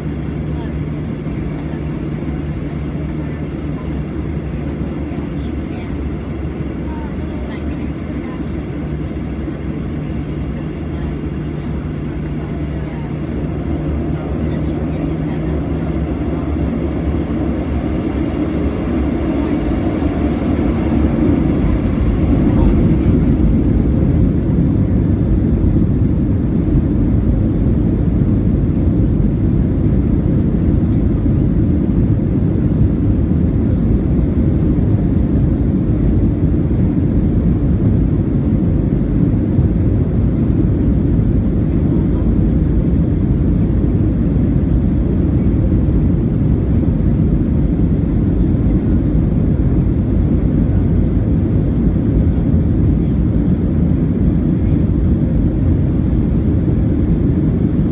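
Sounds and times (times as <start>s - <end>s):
jet engines roaring in cabin: 0.0s - 57.9s.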